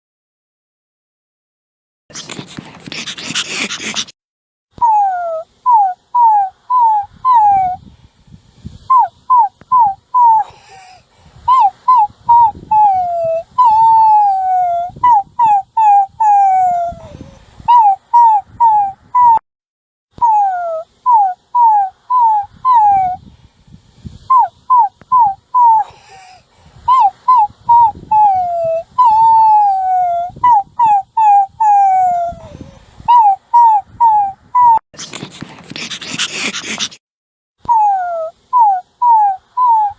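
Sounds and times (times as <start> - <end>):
puppy whimpering and whining: 2.2 - 4.1, 4.8 - 7.8, 20.2 - 23.2, 26.9 - 37.0, 37.7 - 39.9.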